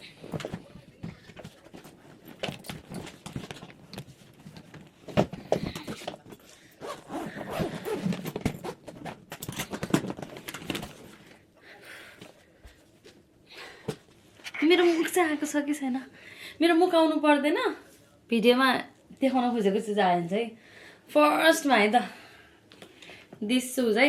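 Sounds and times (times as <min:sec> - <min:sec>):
suitcase rustling and knocks: 0:00.2 - 0:11.0.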